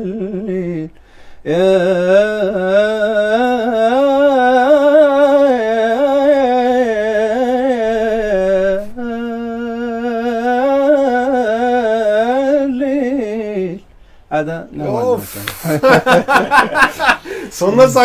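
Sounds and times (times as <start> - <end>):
solo voice singing: 0.0 - 13.9.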